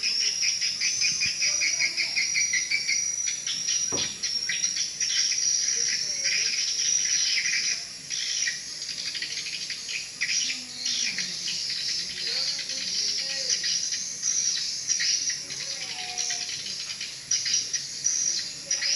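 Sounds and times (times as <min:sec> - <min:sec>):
swiftlet chirps and twitters: 0:00.0 - 0:18.9
short knock: 0:03.9 - 0:04.2.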